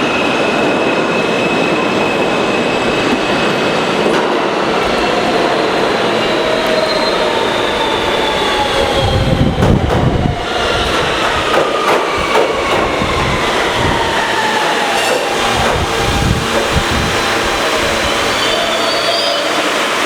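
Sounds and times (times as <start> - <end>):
train propulsion whine: 0.0 - 20.0
train wheels knocking on rail joints: 9.6 - 10.2, 10.8 - 17.3.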